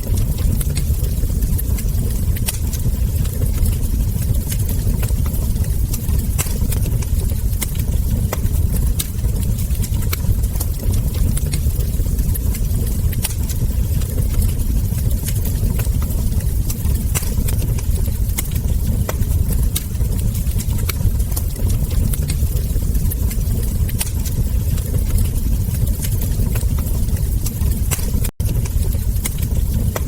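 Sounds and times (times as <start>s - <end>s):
low rumble: 0.0s - 30.0s
wood fire crackling and popping: 0.0s - 30.0s.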